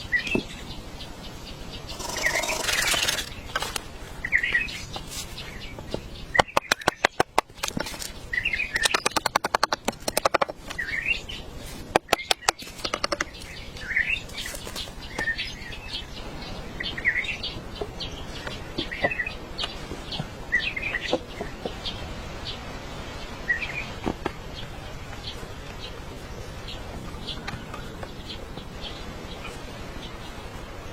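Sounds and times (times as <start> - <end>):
small birds chirping: 0.0 - 22.6
rapid clicking: 1.9 - 3.4.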